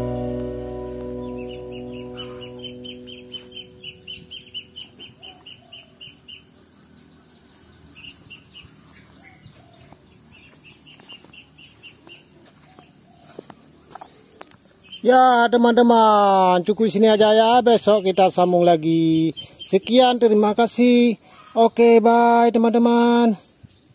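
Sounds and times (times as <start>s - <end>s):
background music: 0.0s - 5.4s
small bird chirping: 0.0s - 15.4s, 16.5s - 22.2s.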